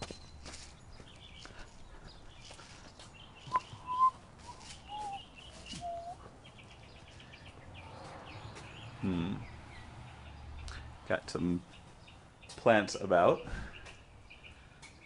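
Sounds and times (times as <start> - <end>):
birds chirping and whistling: 0.1 - 9.9
bird trill: 3.3 - 6.9.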